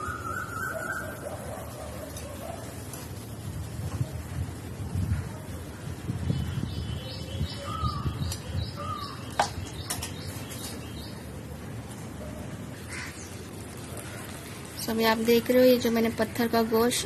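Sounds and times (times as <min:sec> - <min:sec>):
birds chirping: 0:06.0 - 0:17.0.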